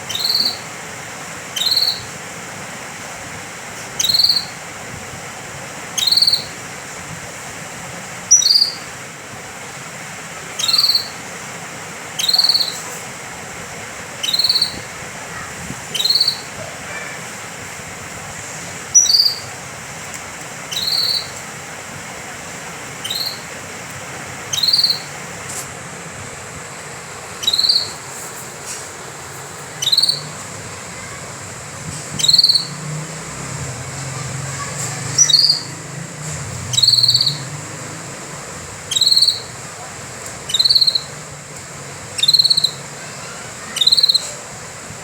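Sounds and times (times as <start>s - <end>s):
canary calls: 0.0s - 0.8s, 1.5s - 2.2s, 3.9s - 4.6s, 6.0s - 6.8s, 8.3s - 9.0s, 10.4s - 11.4s, 12.0s - 13.1s, 14.1s - 17.5s, 18.9s - 19.6s, 20.6s - 21.5s, 22.9s - 23.8s, 24.4s - 25.3s, 27.4s - 28.1s, 29.6s - 31.4s, 32.1s - 33.3s, 33.9s - 41.3s, 42.0s - 44.5s.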